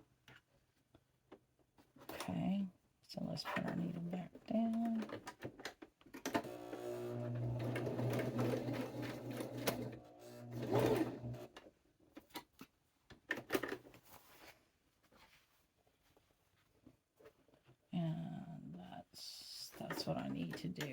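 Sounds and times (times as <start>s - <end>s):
sewing machine stitching: 6.2s - 11.6s.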